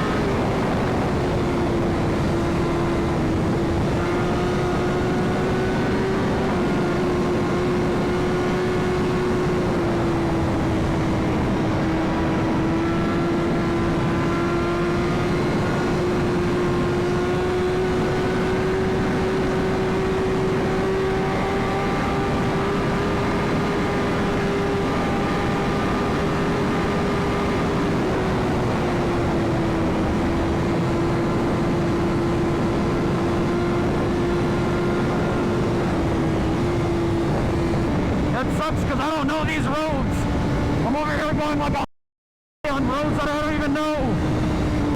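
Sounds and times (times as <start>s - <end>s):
motorcycle engine cruising: 0.0s - 41.6s, 42.8s - 44.9s
wind rush: 0.0s - 41.8s.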